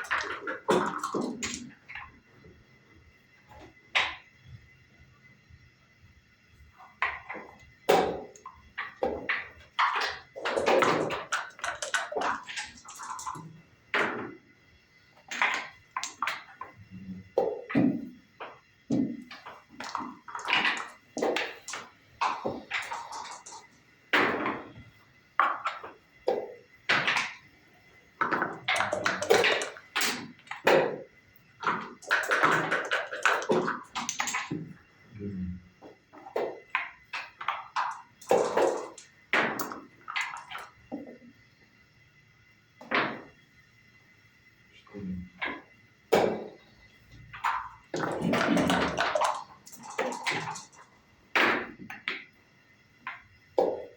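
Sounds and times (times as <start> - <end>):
wooden checkers clicking on board: 0.0 - 2.1, 7.0 - 13.5, 15.3 - 16.8, 18.9 - 24.7, 28.2 - 34.8, 36.3 - 40.8, 47.4 - 52.3
dice rattled and thrown: 28.2 - 30.9, 31.6 - 34.6, 36.7 - 40.7, 47.4 - 50.8.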